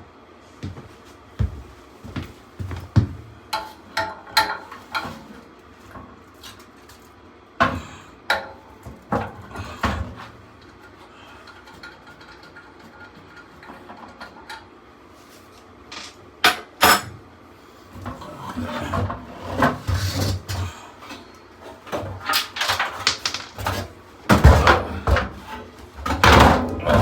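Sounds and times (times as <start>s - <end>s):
metal tools clanking and rattling: 15.9s - 17.1s.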